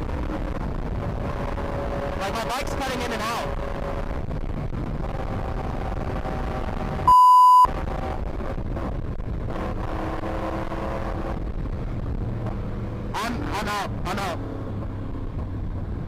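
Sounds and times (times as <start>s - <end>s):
wind noise: 0.0s - 16.0s
censor bleep: 7.1s - 7.7s.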